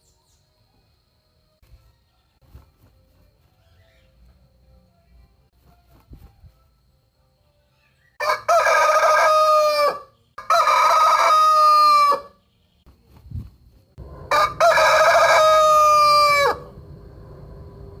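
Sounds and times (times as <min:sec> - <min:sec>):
rooster crowing: 0:08.2 - 0:12.4, 0:14.0 - 0:18.0.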